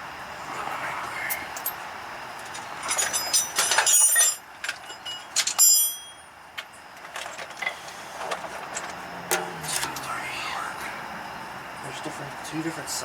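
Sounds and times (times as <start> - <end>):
metal hardware clinking: 2.8 - 6.3.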